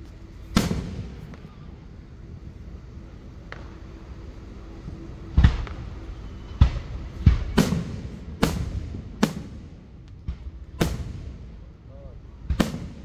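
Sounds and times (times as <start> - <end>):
firework booms with echo: 0.5 - 1.6, 5.2 - 11.8, 12.4 - 13.0.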